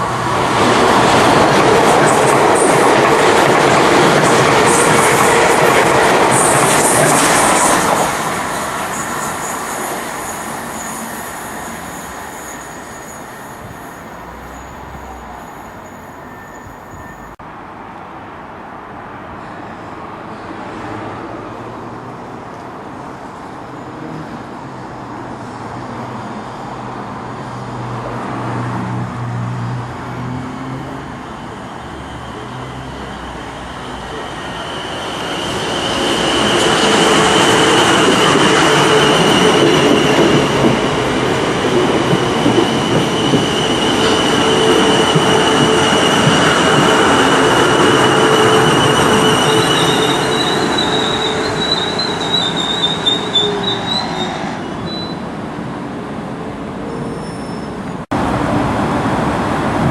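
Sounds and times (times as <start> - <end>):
train rumbling: 0.0 - 17.4, 27.9 - 56.8.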